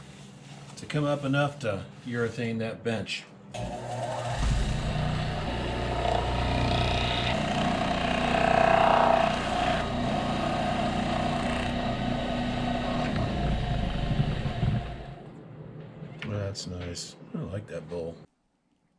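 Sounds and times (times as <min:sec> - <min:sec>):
wood lathe motor hum: 0:03.6 - 0:15.2.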